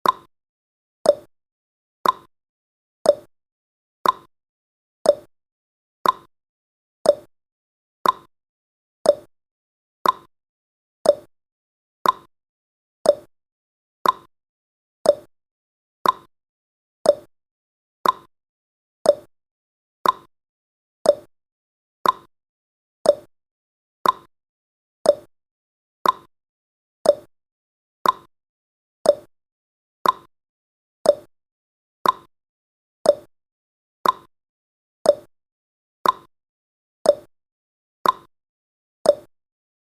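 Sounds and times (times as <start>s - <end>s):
clock tick-tock: 0.0s - 0.3s, 1.0s - 1.3s, 2.0s - 2.3s, 3.0s - 3.3s, 4.0s - 4.3s, 5.0s - 5.3s, 6.0s - 6.3s, 7.0s - 7.3s, 8.0s - 8.3s, 9.0s - 9.3s, 10.0s - 10.3s, 11.0s - 11.3s, 12.0s - 12.3s, 13.0s - 13.3s, 14.0s - 14.3s, 15.0s - 15.3s, 16.0s - 16.3s, 17.0s - 17.3s, 18.0s - 18.3s, 19.0s - 19.3s, 20.0s - 20.3s, 21.0s - 21.3s, 22.0s - 22.3s, 23.0s - 23.3s, 24.0s - 24.3s, 25.0s - 25.3s, 26.0s - 26.3s, 27.0s - 27.3s, 28.0s - 28.3s, 29.0s - 29.3s, 30.0s - 30.3s, 31.0s - 31.3s, 32.0s - 32.3s, 33.0s - 33.3s, 34.0s - 34.3s, 35.0s - 35.3s, 36.0s - 36.3s, 37.0s - 37.3s, 38.0s - 38.3s, 39.0s - 39.4s.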